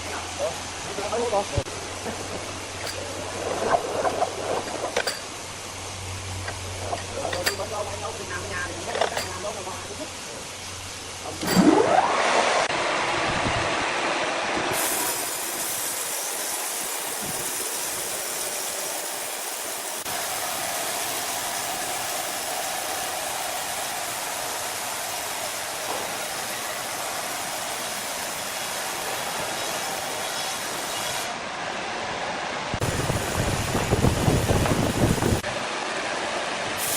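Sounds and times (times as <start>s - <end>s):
power saw cutting wood: 6.4s - 9.7s, 14.5s - 31.4s.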